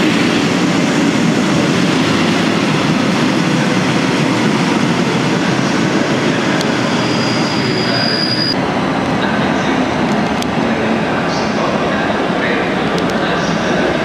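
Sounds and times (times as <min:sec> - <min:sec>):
train wheels rumbling on rails: 0:00.0 - 0:14.0
high wheel squeal: 0:06.8 - 0:08.6.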